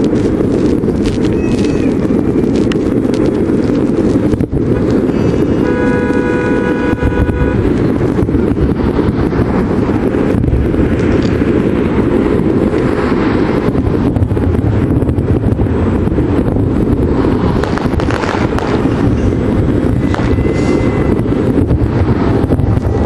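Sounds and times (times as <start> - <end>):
fireworks barrage rumble and bangs: 0.0 - 23.0
wind buffeting microphone: 0.0 - 23.0
horn held note: 5.6 - 7.6.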